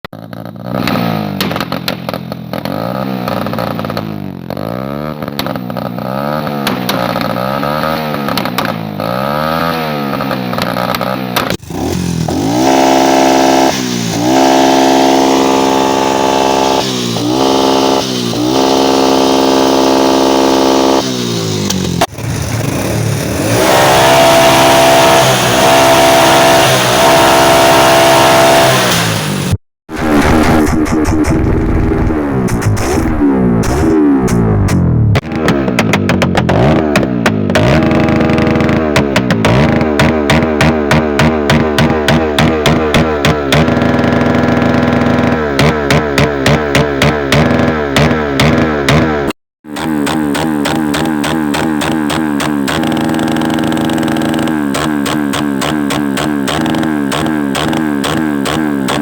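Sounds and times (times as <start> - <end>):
motorcycle engines revving: 0.2 - 59.0.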